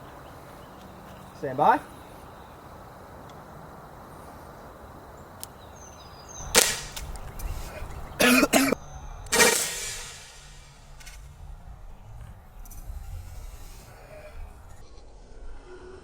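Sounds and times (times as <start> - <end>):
launcher firing pop: 6.5 - 7.1, 9.3 - 10.7.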